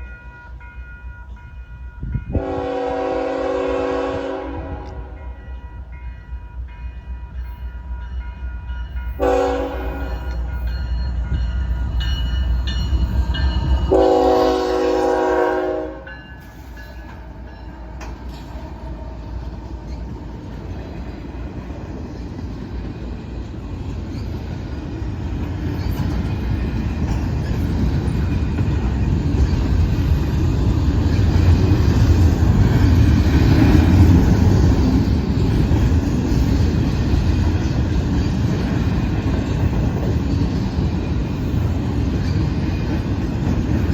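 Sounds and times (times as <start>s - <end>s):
train wheels rumbling on rails: 0.0s - 43.9s
train horn blasts: 2.3s - 5.6s, 9.2s - 10.5s, 13.9s - 16.3s.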